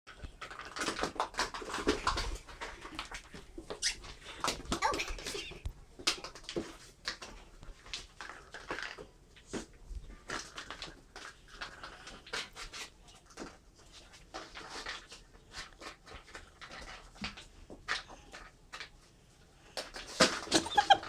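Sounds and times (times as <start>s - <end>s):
plastic balls clicking: 0.1s - 9.5s
puppy scampering: 20.5s - 21.0s
puppy panting: 20.6s - 21.0s.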